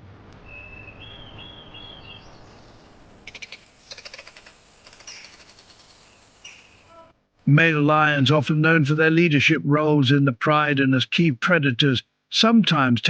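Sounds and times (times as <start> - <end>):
bird whistled note: 0.4 - 2.4
bird clicking chatter: 3.2 - 6.9.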